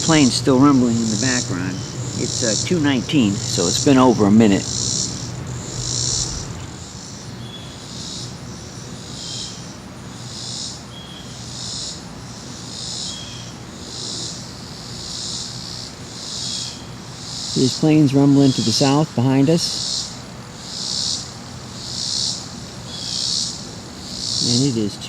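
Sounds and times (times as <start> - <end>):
distant jet airliner rumble: 0.0 - 7.5
insect chorus buzzing: 0.0 - 25.0.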